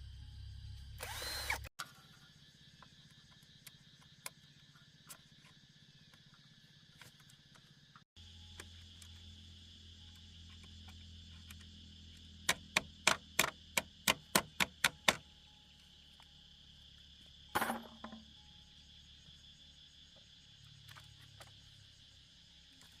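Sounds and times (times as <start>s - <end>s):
insects chirring: 0.0s - 23.0s
hand tool striking wood: 12.5s - 15.2s.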